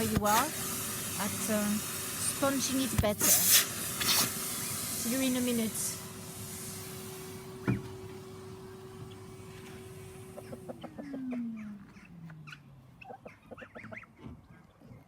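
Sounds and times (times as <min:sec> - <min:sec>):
vacuum cleaner motor winding down: 0:00.0 - 0:12.4
chickens clucking: 0:10.4 - 0:15.0.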